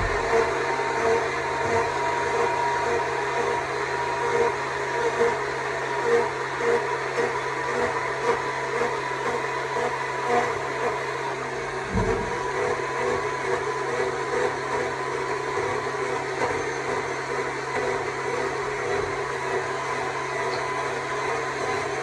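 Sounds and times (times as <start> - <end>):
low thump: 0.0 - 0.4, 11.9 - 12.6.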